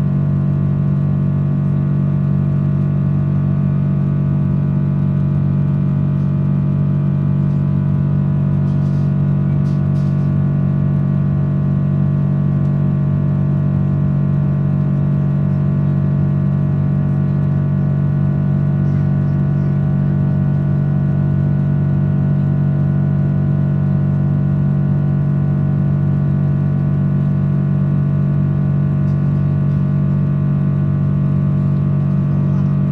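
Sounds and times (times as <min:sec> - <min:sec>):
airliner cabin drone: 0:28.9 - 0:32.9.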